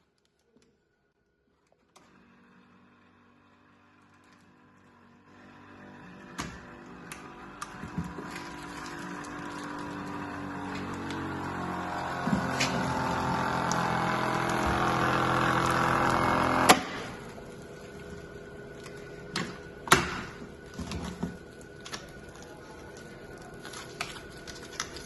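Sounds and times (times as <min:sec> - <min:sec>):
vacuum cleaner motor running: 0:02.0 - 0:19.8.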